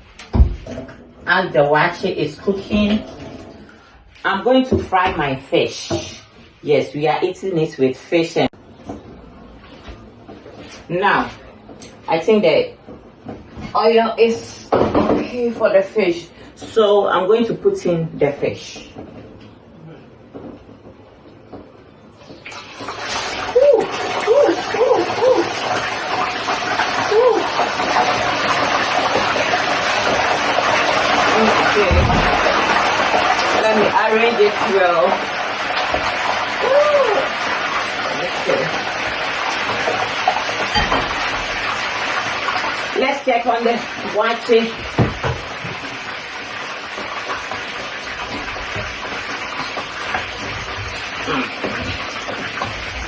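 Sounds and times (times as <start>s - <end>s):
fish sizzling in oil: 22.4s - 53.0s.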